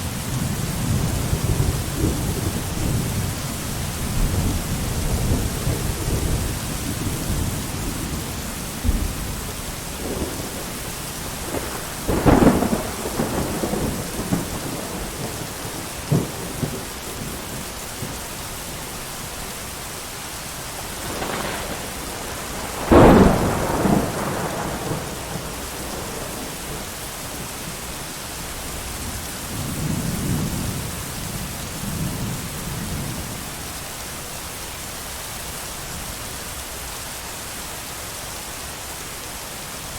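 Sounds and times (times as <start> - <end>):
heavy rain hiss: 0.0 - 39.9
thunder cracks and rumble: 0.2 - 18.3, 20.8 - 27.6.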